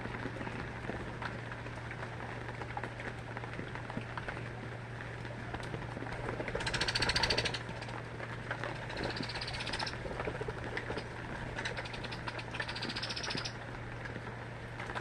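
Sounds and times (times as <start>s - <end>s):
bird rattling trills: 6.6s - 7.9s, 8.8s - 10.0s, 11.6s - 13.6s.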